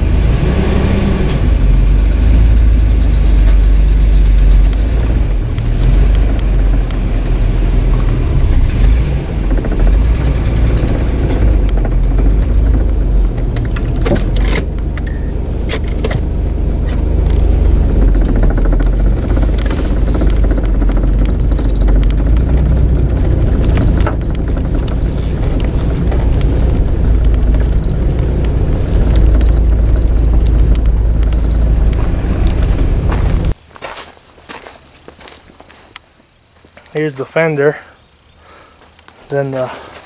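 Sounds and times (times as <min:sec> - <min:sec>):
truck engine rumbling: 0:00.0 - 0:40.0
sharp clicks or knocks: 0:01.2 - 0:33.6.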